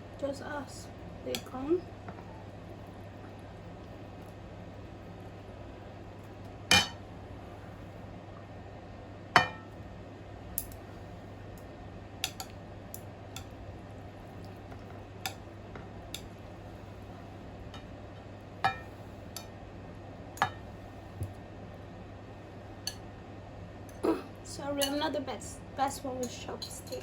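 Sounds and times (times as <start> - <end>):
faint low hum: 0.0 - 27.0
chopsticks clinking against a bowl: 12.2 - 12.6, 24.8 - 25.1, 26.2 - 27.0.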